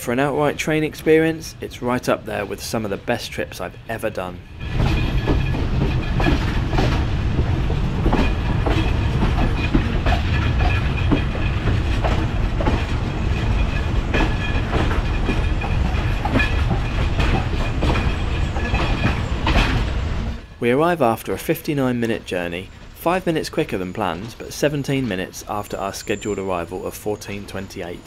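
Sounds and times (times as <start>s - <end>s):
train rumbling: 0.0s - 28.0s
wheels clacking over rail joints: 0.0s - 28.0s.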